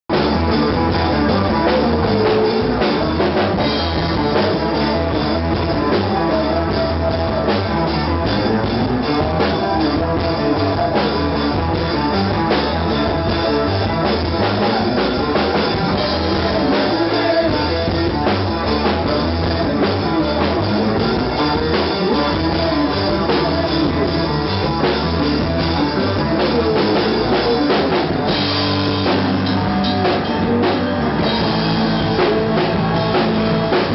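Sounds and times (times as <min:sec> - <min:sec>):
drum kit beat: 0:00.1 - 0:33.9
rock band playing: 0:00.1 - 0:33.9.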